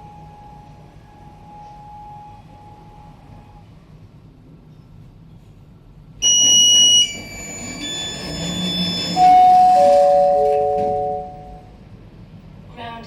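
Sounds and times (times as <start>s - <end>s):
high electronic beep: 6.2s - 11.6s
three-note falling chime: 9.2s - 11.6s.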